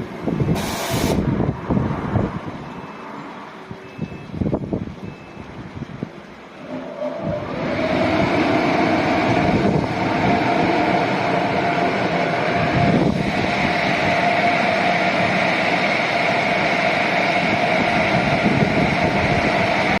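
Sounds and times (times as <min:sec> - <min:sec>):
car wash machine whirring: 0:06.6 - 0:20.0.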